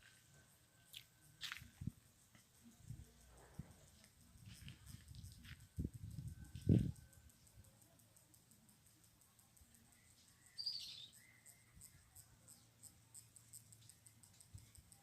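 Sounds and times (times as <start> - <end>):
high bird chirp: 10.4 - 11.7.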